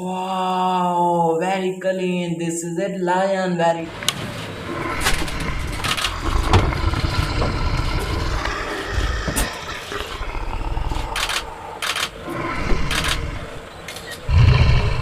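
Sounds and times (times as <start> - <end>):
lion growling and roaring: 4.5 - 15.0.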